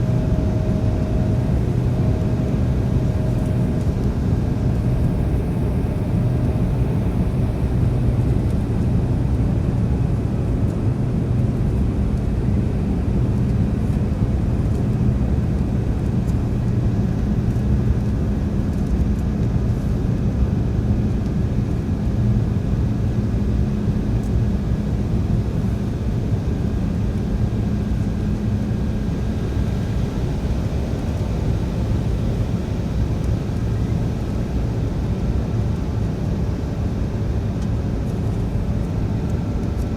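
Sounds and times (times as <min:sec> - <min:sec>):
airflow noise: 0:00.0 - 0:09.3
jet engine hum: 0:00.0 - 0:39.9.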